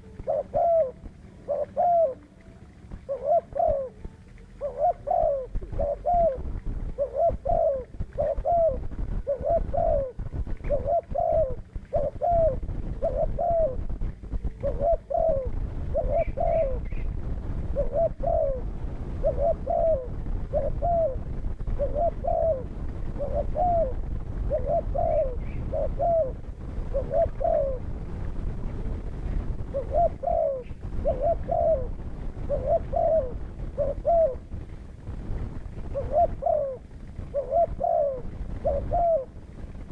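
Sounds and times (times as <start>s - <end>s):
dove cooing: 0.0s - 34.8s, 35.4s - 39.9s
low rumble: 0.0s - 39.9s
small bird chirps: 14.5s - 17.1s.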